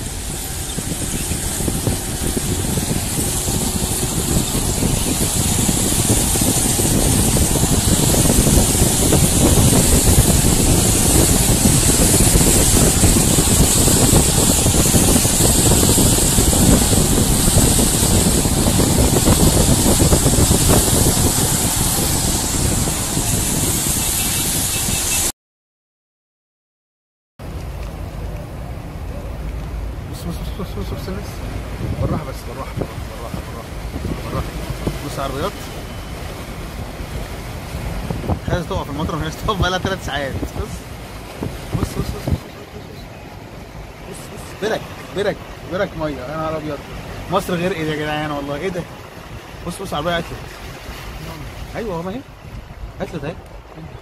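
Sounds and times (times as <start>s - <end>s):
low rumble: 0.0s - 24.7s
heavy rain pouring: 0.0s - 25.3s, 27.4s - 54.0s.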